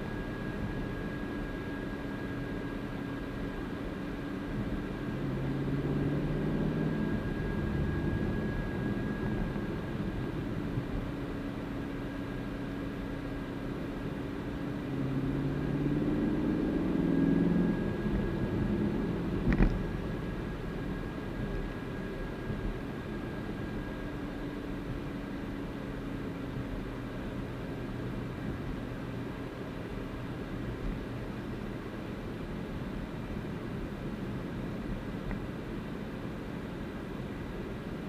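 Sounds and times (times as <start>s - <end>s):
road noise: 0.0s - 38.0s
car engine accelerating: 5.2s - 9.0s, 14.7s - 20.5s.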